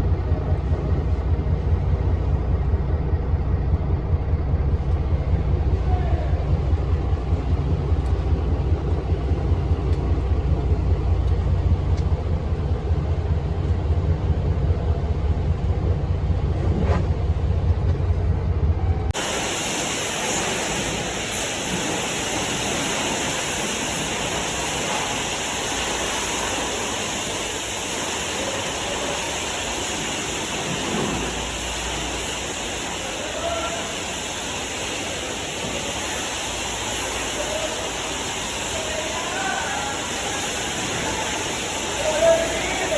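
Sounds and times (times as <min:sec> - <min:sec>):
truck engine idling: 0:00.0 - 0:42.9
water spray hissing: 0:19.2 - 0:42.9.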